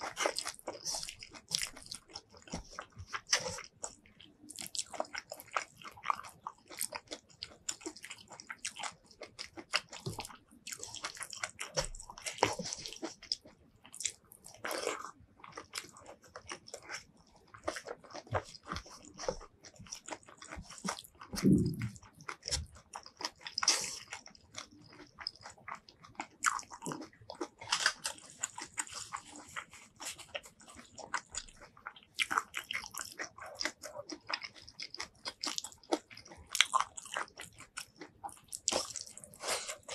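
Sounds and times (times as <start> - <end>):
crunchy chewing: 0.0 - 39.9
wet mouth clicks: 21.4 - 22.0.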